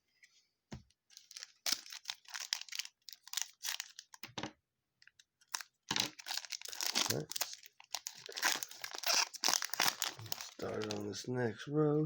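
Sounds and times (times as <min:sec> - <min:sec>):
foil wrapper crinkling and tearing: 0:01.1 - 0:04.3, 0:05.4 - 0:11.1.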